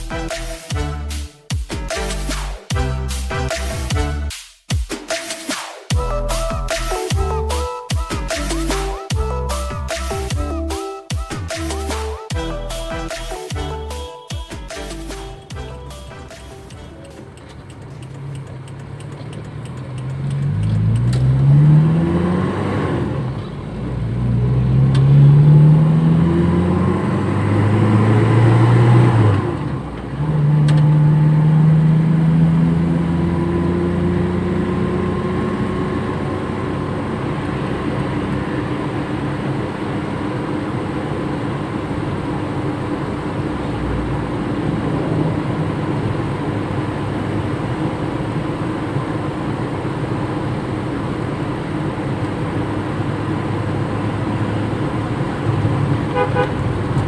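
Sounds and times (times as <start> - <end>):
car engine accelerating through gears: 17.3 - 57.0.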